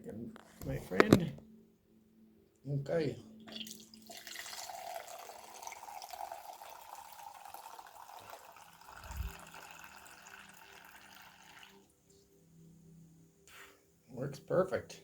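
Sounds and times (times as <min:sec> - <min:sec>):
liquid pouring into glass: 0:03.5 - 0:11.9.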